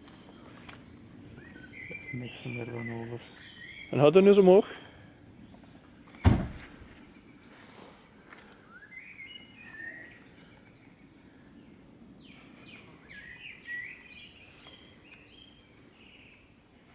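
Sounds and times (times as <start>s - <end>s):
small birds chirping: 0.0s - 16.9s
sharp thump: 6.2s - 6.8s.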